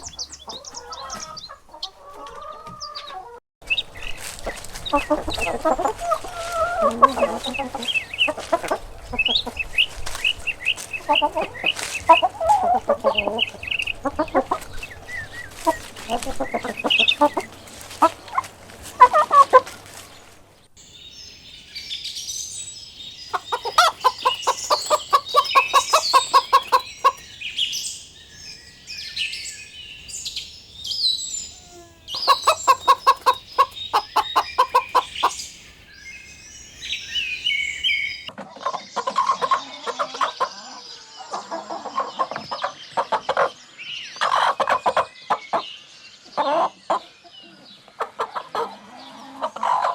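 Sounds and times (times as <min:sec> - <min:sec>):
chickens clucking: 0:00.0 - 0:03.4, 0:04.4 - 0:14.8, 0:15.5 - 0:19.4, 0:21.5 - 0:38.3
high-pitched chirping: 0:22.8 - 0:38.3.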